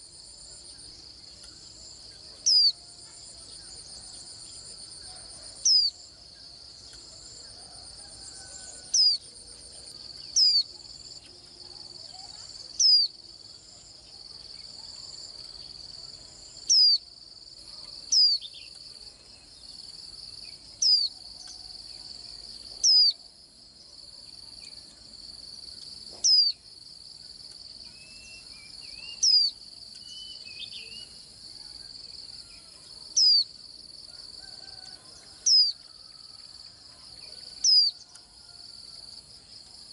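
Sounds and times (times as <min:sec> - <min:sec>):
high-pitched insect trill: 0:24.5 - 0:39.9.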